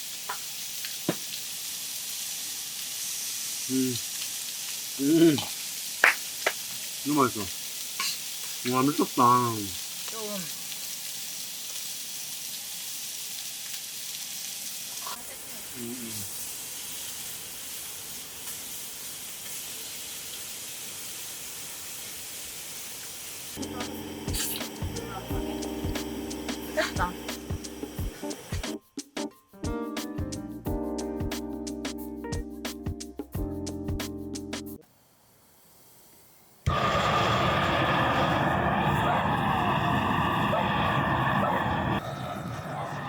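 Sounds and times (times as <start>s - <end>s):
food sizzling: 0.0s - 43.0s
person humming mm while tasting: 5.0s - 5.6s.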